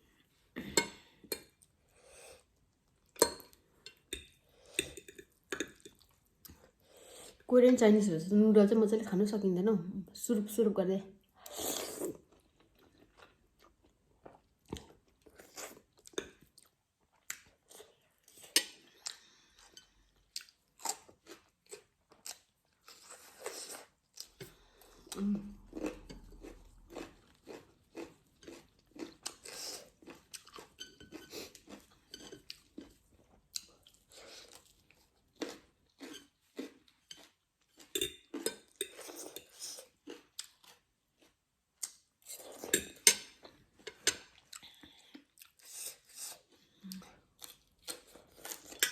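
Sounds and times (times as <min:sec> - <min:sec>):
chewing and crunching: 0:11.7 - 0:48.9.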